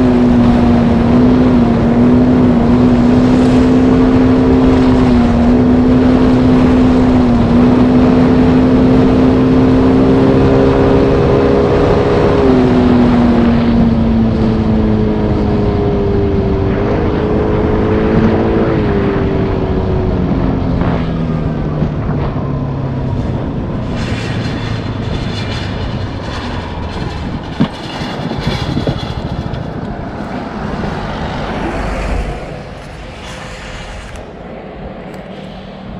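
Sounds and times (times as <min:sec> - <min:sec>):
hiss of noise: 0:30.8 - 0:35.8.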